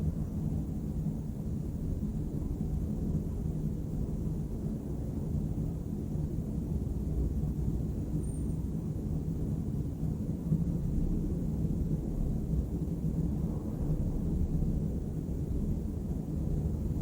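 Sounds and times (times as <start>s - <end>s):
distant city traffic rumble: 0.0s - 17.0s.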